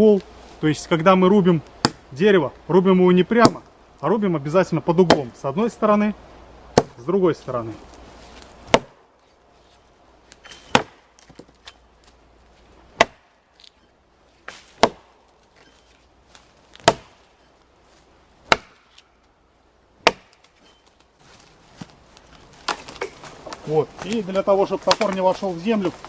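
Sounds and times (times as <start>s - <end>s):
axe chopping tree trunk: 1.8s - 2.0s, 3.4s - 3.7s, 5.0s - 5.3s, 6.7s - 7.0s, 8.6s - 9.0s, 10.3s - 12.2s, 12.9s - 13.4s, 14.4s - 15.2s, 16.7s - 17.2s, 18.4s - 19.1s, 20.0s - 20.8s, 22.6s - 24.2s, 24.8s - 25.4s.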